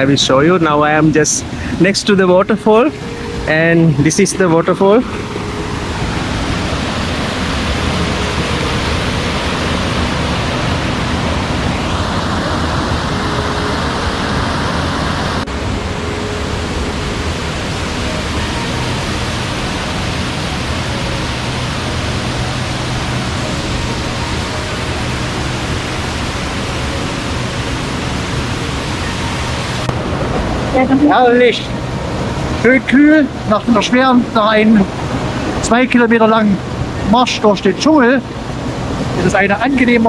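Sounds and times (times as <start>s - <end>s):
waterfall roaring: 0.0s - 40.0s.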